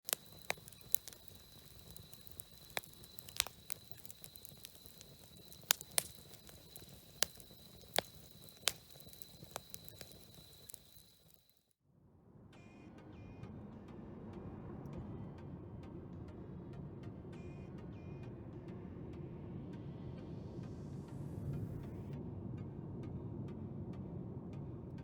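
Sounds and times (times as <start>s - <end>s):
campfire crackling and popping: 0.0s - 11.6s.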